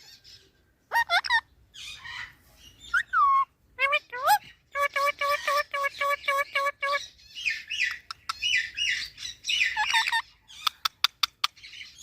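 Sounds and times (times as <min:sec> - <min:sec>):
parrot calling and chattering: 0:00.0 - 0:12.0.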